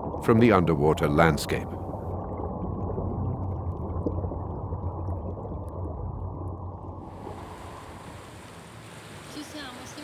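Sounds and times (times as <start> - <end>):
hiss of water: 7.0 - 10.0
rushing water: 7.0 - 10.0.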